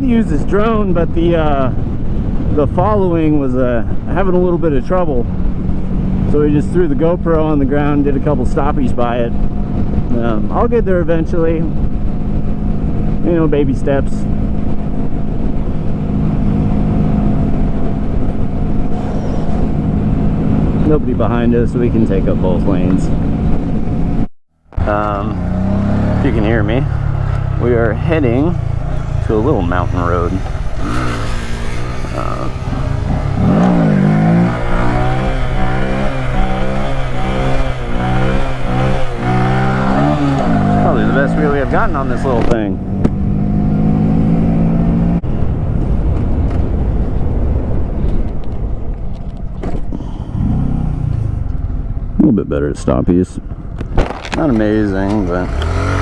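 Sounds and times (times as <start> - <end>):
motorcycle engine cruising: 0.0 - 52.2, 52.8 - 56.0
mini bike engine revving: 18.8 - 19.9, 24.8 - 42.5, 54.2 - 56.0.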